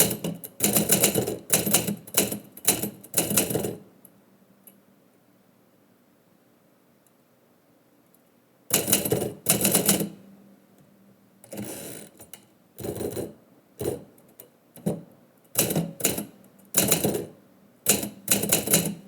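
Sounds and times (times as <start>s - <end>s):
typewriter keystrokes: 17.9s - 19.0s.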